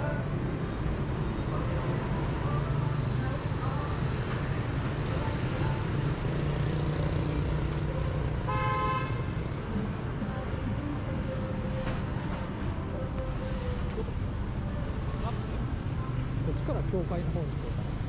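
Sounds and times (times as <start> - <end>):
street traffic engines: 0.0 - 18.0
vehicle horn honk: 8.5 - 9.3.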